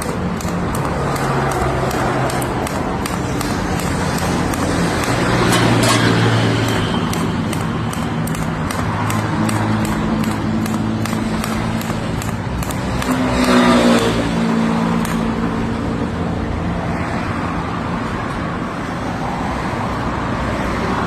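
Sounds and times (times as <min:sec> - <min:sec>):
fast regular ticks: 0:00.0 - 0:05.4, 0:06.5 - 0:14.3, 0:15.0 - 0:15.3.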